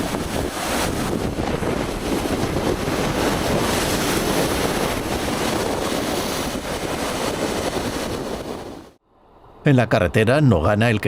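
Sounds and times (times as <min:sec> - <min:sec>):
surf: 0:00.0 - 0:09.0
wind buffeting microphone: 0:00.0 - 0:09.0
strong wind: 0:00.0 - 0:10.2.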